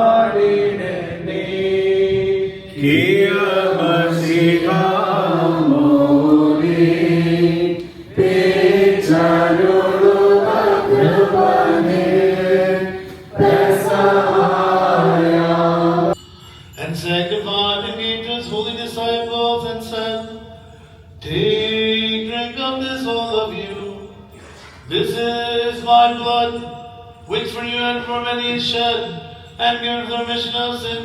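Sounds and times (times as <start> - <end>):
voices singing liturgical chant: 0.0 - 16.2.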